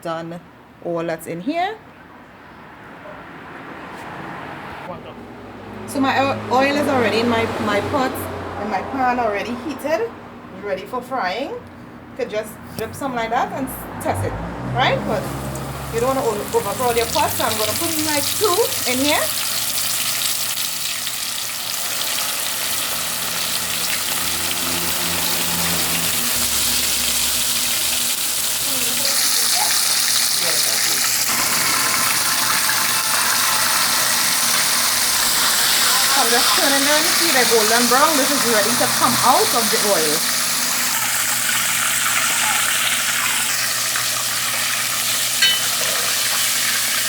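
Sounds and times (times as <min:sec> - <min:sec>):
chicken frying in oil: 0:15.2 - 0:47.0
short metallic clink: 0:45.4 - 0:46.0.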